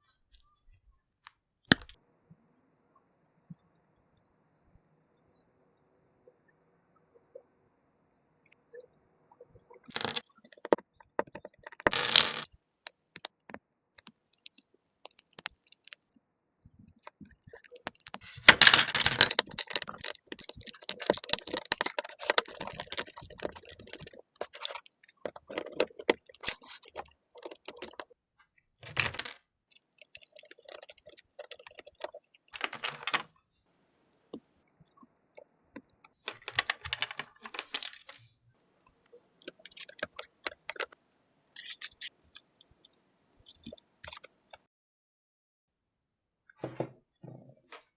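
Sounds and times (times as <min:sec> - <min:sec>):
plastic bricks clicking and rattling: 0:01.7 - 0:02.0, 0:09.8 - 0:16.1, 0:16.8 - 0:28.0, 0:28.8 - 0:33.3, 0:35.8 - 0:38.2, 0:39.4 - 0:41.0, 0:43.6 - 0:44.6.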